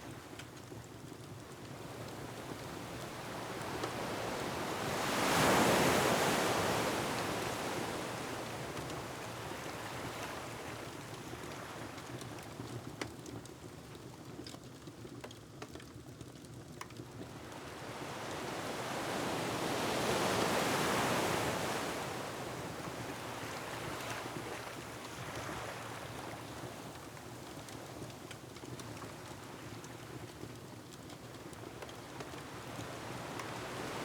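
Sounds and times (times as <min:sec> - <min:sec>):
surf rumble: 0:17.3 - 0:26.9.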